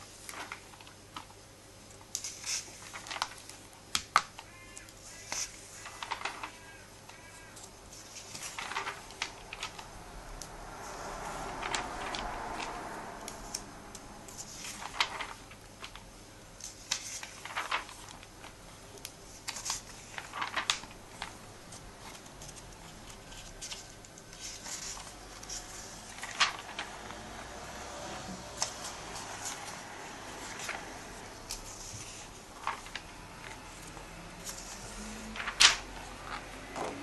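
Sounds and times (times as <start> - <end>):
paper rustling: 0.0 - 37.0.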